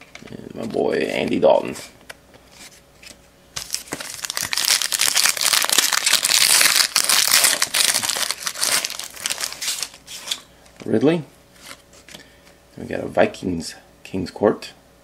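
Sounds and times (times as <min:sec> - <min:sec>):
foil wrapper tearing and crinkling: 0:03.6 - 0:10.4.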